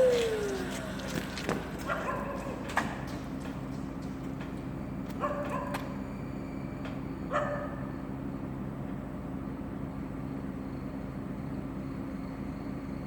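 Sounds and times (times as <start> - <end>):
low mechanical hum: 0.0 - 13.0
dog barking: 1.8 - 2.6, 5.2 - 5.8, 7.3 - 7.9.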